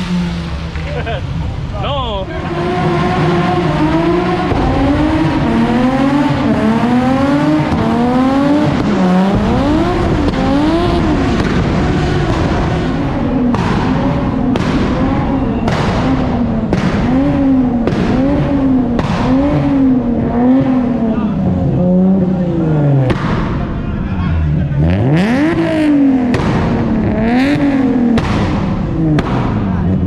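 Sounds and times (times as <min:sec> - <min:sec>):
car engine revving hard: 0:00.0 - 0:30.0
tires squealing: 0:00.0 - 0:30.0
sharp cracks: 0:02.9 - 0:20.8, 0:25.5 - 0:29.8.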